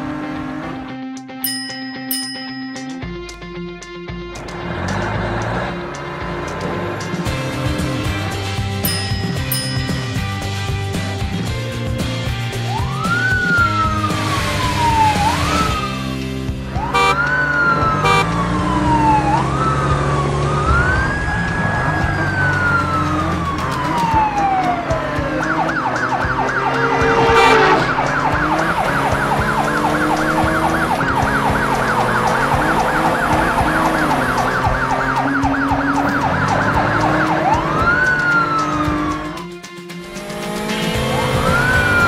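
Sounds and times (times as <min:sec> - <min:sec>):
cartoon police siren: 0:12.6 - 0:16.0, 0:16.8 - 0:39.5, 0:41.4 - 0:42.0.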